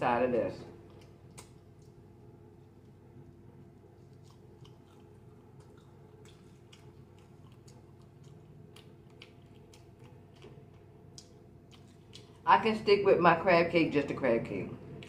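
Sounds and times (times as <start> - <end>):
low steady hum: 0.0 - 15.0
chewing and lip-smacking: 0.7 - 12.5.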